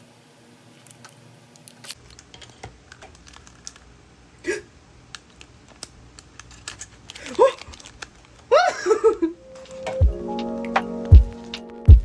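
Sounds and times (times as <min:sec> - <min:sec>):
packaging clicks and crinkles: 0:01.8 - 0:03.9, 0:05.2 - 0:08.5.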